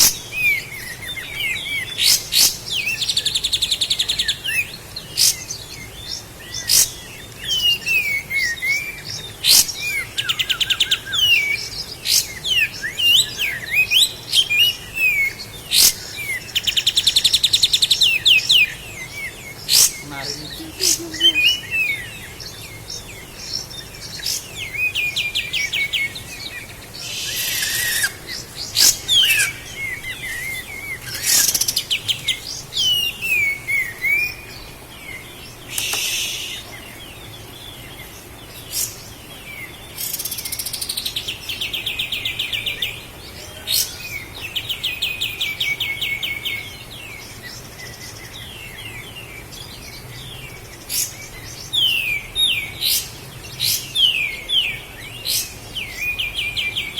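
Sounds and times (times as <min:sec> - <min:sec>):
bird singing chirps and trills: 0:00.0 - 0:56.9
harsh hissing bursts: 0:27.0 - 0:29.0, 0:35.7 - 0:36.7.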